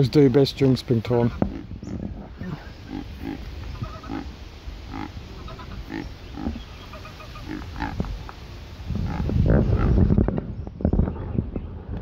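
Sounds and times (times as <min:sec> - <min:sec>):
goose grunting calls: 0:01.3 - 0:08.0.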